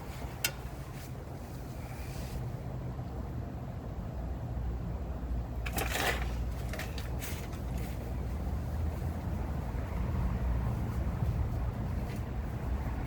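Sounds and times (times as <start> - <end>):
steady low rumble: 6.4 - 13.0.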